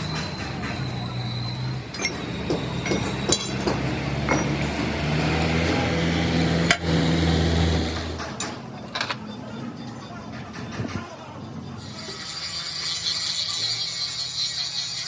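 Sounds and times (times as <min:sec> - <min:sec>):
metal tools clinking: 0:01.9 - 0:03.6, 0:08.2 - 0:15.0.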